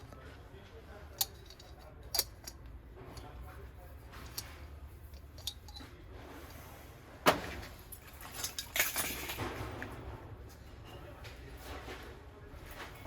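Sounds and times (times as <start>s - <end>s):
small metal items clinking: 7.9s - 9.4s.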